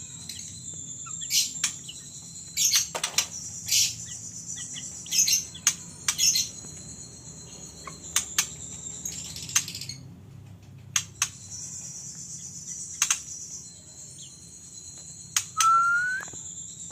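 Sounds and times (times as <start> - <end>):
bird chirping and clicking: 0.2 - 16.5.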